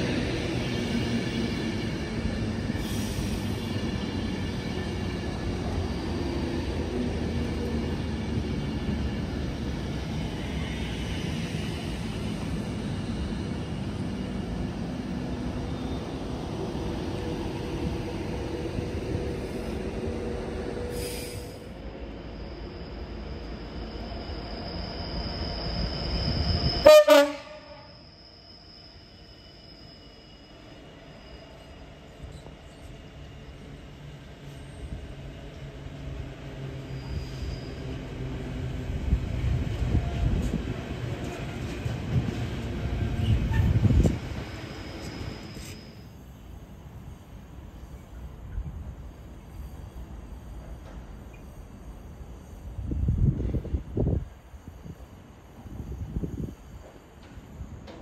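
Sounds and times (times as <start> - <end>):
train passing at speed: 0.0 - 58.0
train horn note: 26.8 - 27.9.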